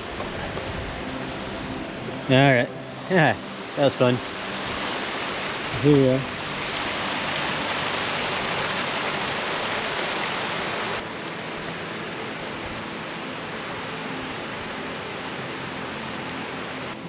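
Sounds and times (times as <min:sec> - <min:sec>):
water pouring down spillway: 0:00.0 - 0:12.2.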